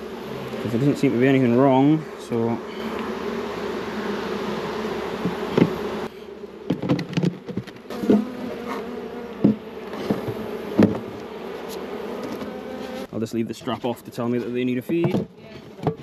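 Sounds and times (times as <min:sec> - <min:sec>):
honey bees buzzing: 0:00.0 - 0:13.5
wooden knocks of hive boxes: 0:04.0 - 0:06.0, 0:06.6 - 0:13.0, 0:14.8 - 0:16.0.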